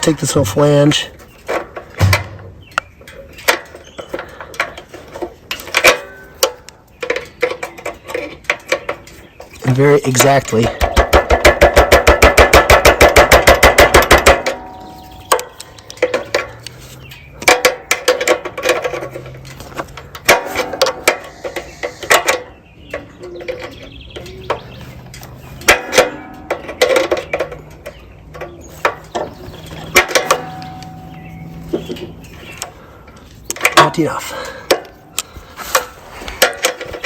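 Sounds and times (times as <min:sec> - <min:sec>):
tools tapping and clinking on metal: 0:00.0 - 0:37.0
fast metal strikes: 0:02.0 - 0:02.7, 0:09.7 - 0:15.6, 0:20.2 - 0:22.7.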